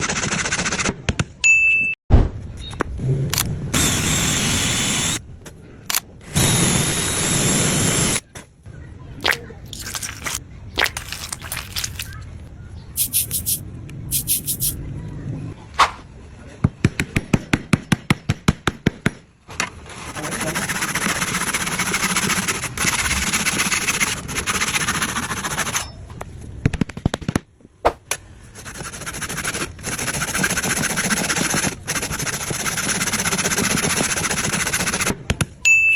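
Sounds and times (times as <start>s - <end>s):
steady machine noise: 3.8s - 5.2s.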